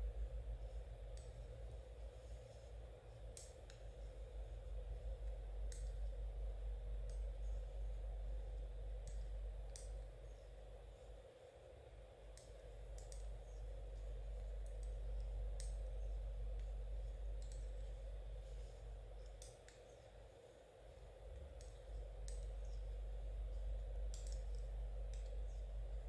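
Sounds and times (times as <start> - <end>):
steady low hum: 0.0 - 26.0
knitting needles clicking: 5.2 - 6.2, 8.6 - 10.2, 12.3 - 18.2, 18.9 - 20.1, 21.4 - 25.8.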